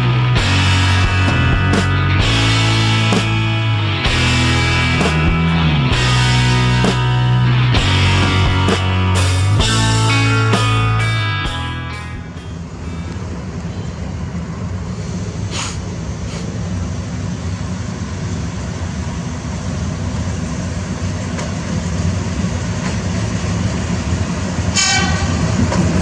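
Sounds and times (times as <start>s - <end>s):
train low rumble: 0.0s - 26.0s
high-pitched tone: 8.2s - 13.2s.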